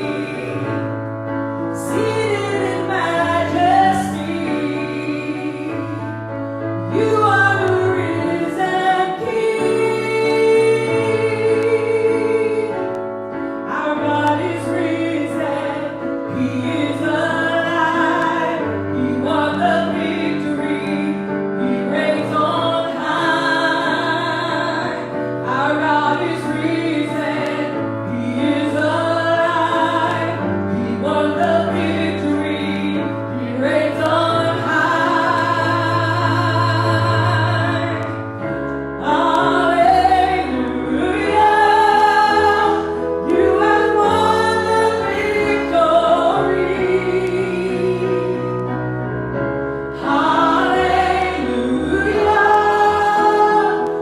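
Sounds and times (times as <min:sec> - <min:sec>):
voices singing: 0:31.1 - 0:38.2, 0:39.0 - 0:48.6, 0:50.0 - 0:54.0.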